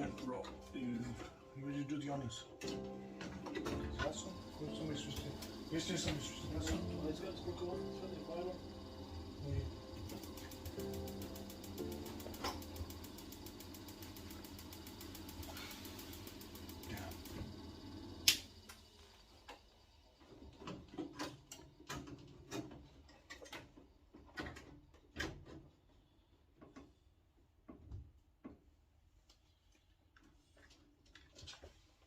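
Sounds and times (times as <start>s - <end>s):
steady hum: 0.0s - 18.8s.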